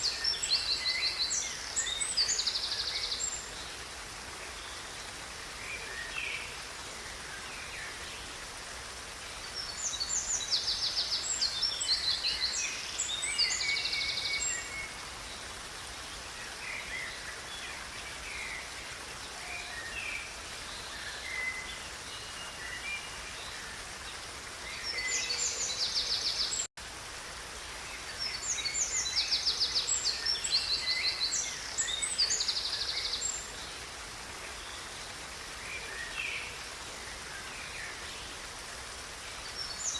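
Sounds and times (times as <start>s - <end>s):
river water rushing: 0.0s - 39.9s
songbirds singing: 0.0s - 39.9s.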